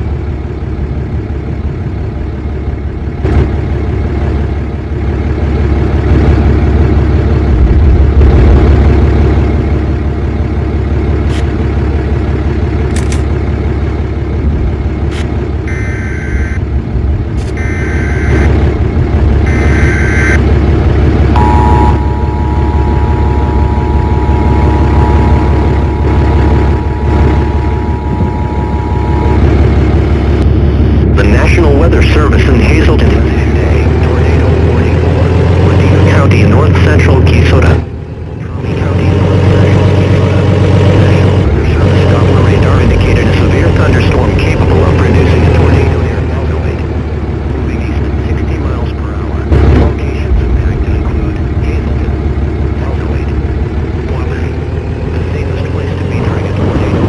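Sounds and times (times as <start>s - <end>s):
road vehicle rumbling: 0.0s - 57.0s
two-tone electronic alert tone: 15.7s - 16.6s, 17.5s - 18.5s, 19.5s - 20.4s, 21.4s - 30.8s.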